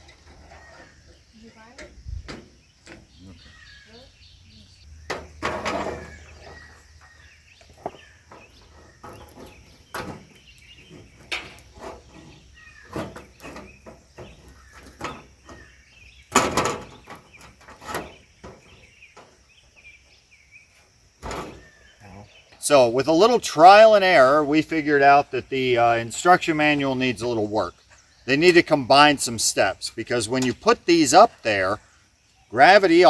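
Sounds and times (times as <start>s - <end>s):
roof pieces knocking and clattering: 5.1s - 6.8s, 7.8s - 19.4s.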